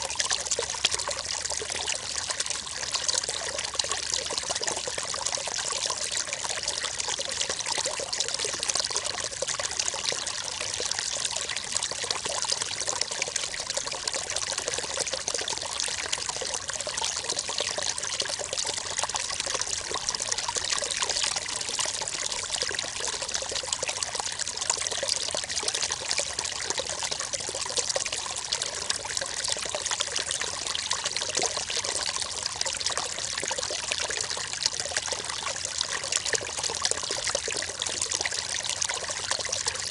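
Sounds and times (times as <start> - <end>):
river water flowing over stones: 27.1 - 39.9.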